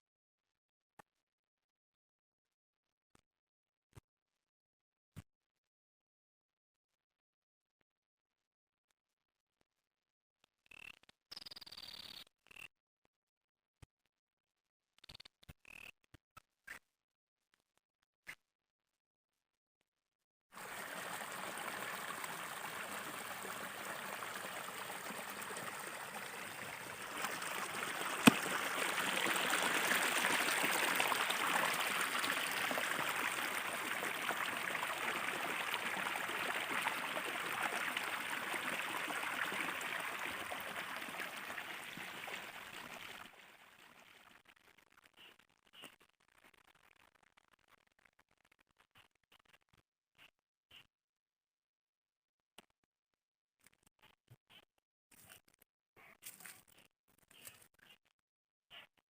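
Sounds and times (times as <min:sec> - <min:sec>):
river water rushing: 0:20.6 - 0:43.2.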